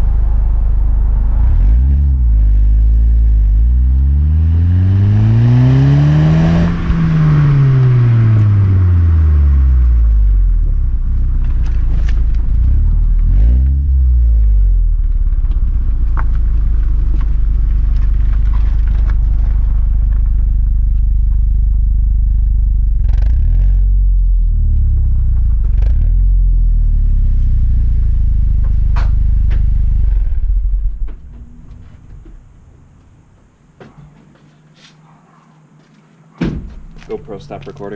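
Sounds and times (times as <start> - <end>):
vehicle engine exhaust revving: 0.0 - 33.5.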